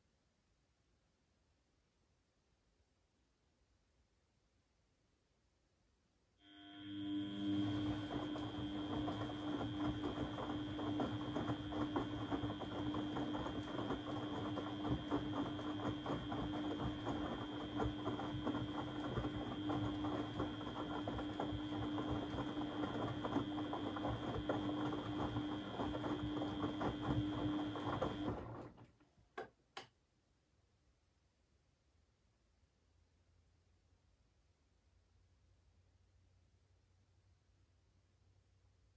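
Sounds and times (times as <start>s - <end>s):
washing machine rattling and sloshing: 7.6s - 28.9s.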